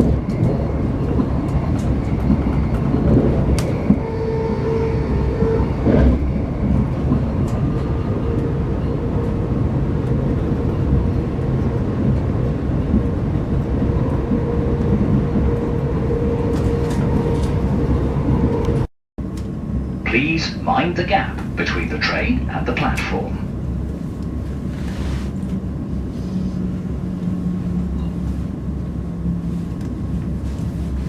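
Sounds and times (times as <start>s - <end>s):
train wheels rumbling on track: 0.0s - 20.6s, 21.2s - 31.0s
steady hum: 20.1s - 23.4s.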